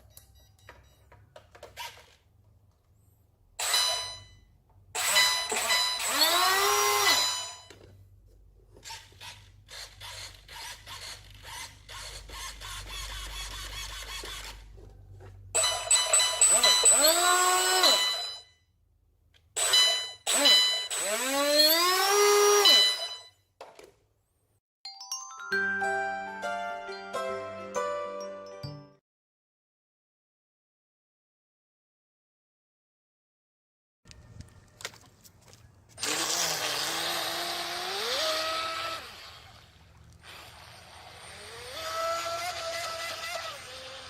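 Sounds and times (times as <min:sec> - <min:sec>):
electric motor revving: 0:05.6 - 0:07.2, 0:16.9 - 0:18.0, 0:20.3 - 0:22.8, 0:36.0 - 0:44.0.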